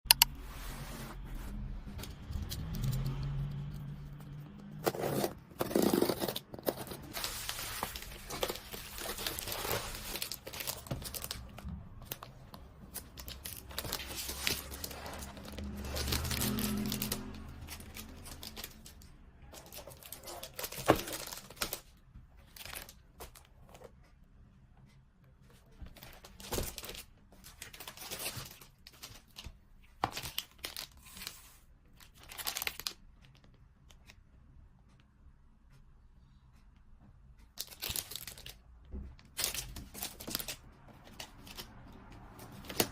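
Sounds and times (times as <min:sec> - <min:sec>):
packaging crinkling and tearing: 0:04.8 - 0:21.9, 0:30.0 - 0:33.0, 0:37.6 - 0:38.6, 0:39.3 - 0:41.7.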